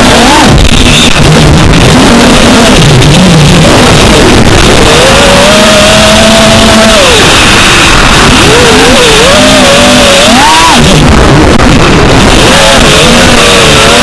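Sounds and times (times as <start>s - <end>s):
wind rush: 0.0s - 14.0s
quadcopter motors whining: 3.5s - 11.2s.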